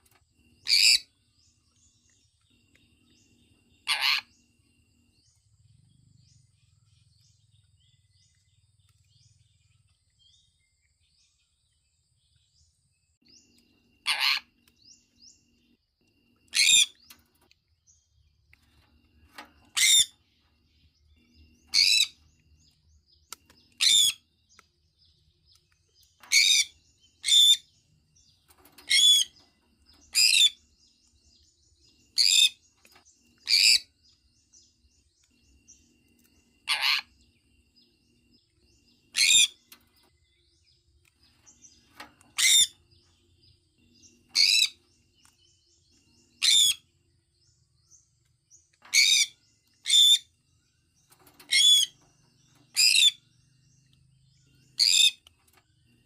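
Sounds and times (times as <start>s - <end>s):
parrot high-pitched calls: 0.6s - 1.1s, 3.8s - 4.3s, 14.0s - 14.6s, 16.5s - 17.0s, 21.7s - 22.2s, 23.8s - 24.2s, 36.6s - 37.1s, 39.1s - 39.6s, 42.4s - 42.8s, 46.4s - 46.8s, 51.5s - 51.9s, 52.7s - 53.2s, 54.8s - 55.2s.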